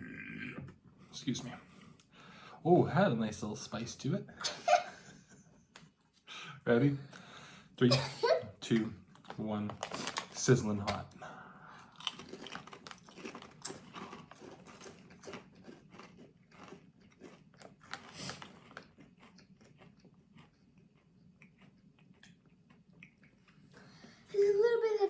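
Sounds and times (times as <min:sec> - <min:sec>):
potato chips crunching: 0:08.7 - 0:11.0, 0:11.8 - 0:22.8.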